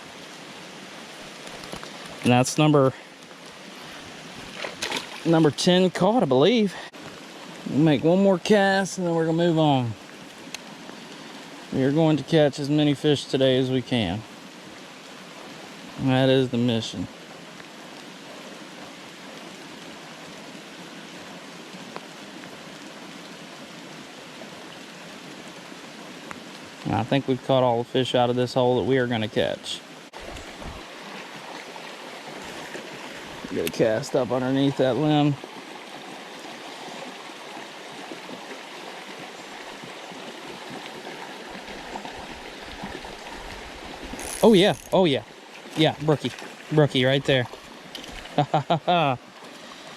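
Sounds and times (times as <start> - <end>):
falling rain: 0.0 - 49.9
flowing creek water: 0.0 - 49.9.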